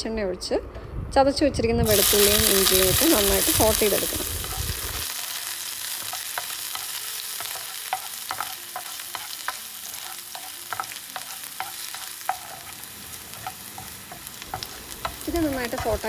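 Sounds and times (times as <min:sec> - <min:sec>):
garlic sizzling in hot oil: 0:01.8 - 0:16.0.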